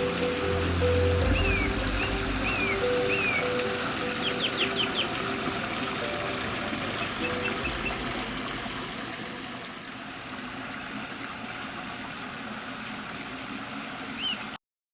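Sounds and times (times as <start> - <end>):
waterfall splashing trickle: 0.0 - 14.6.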